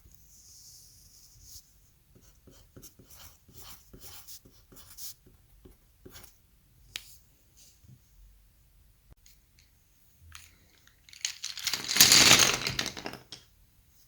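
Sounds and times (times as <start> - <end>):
pen scratching on paper: 2.2 - 6.4.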